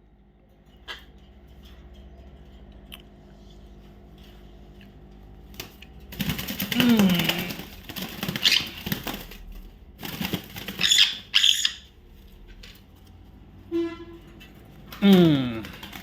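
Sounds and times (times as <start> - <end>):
wings fluttering: 5.4 - 13.1, 14.9 - 16.0
parakeet squawking: 8.3 - 8.9, 10.6 - 11.9.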